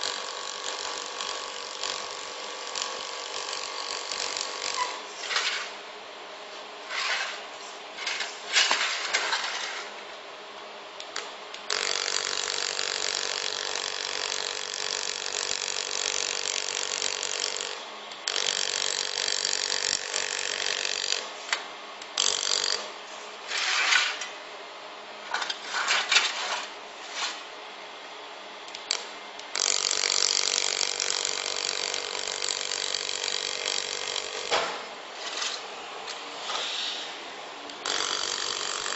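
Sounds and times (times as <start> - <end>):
laser welder buzzing hiss: 0.0 - 5.9, 11.1 - 21.5, 22.1 - 24.4, 28.8 - 38.9.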